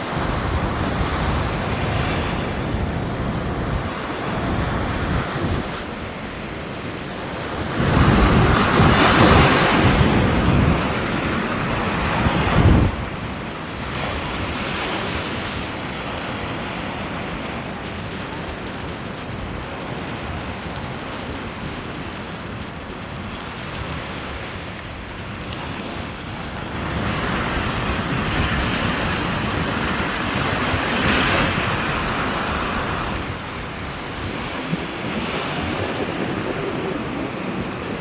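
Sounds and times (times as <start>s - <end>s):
sea surf breaking on beach: 0.0s - 38.0s
wind buffeting microphone: 0.0s - 38.0s.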